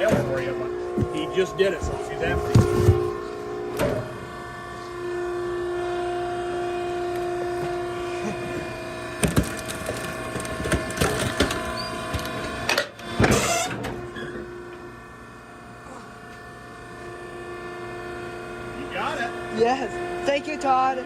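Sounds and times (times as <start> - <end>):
baler humming: 0.0 - 9.2
cardboard boxes cracking and crunching: 9.2 - 12.3.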